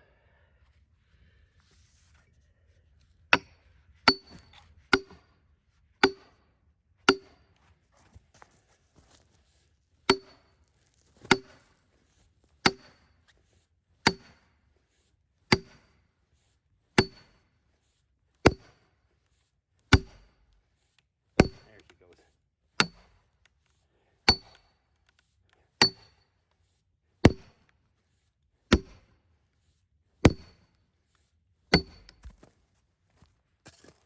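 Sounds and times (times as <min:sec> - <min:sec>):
hammer striking steel wedge: 0:03.4 - 0:05.3, 0:06.0 - 0:06.4, 0:07.1 - 0:07.4, 0:10.1 - 0:10.4, 0:11.3 - 0:11.6, 0:12.6 - 0:13.0, 0:14.0 - 0:14.5, 0:15.5 - 0:16.0, 0:17.0 - 0:17.4, 0:18.4 - 0:18.9, 0:19.9 - 0:20.4, 0:21.4 - 0:21.7, 0:22.8 - 0:23.2, 0:24.3 - 0:24.6, 0:25.8 - 0:26.2, 0:27.2 - 0:27.6, 0:28.7 - 0:29.1, 0:30.2 - 0:30.6, 0:31.7 - 0:32.3.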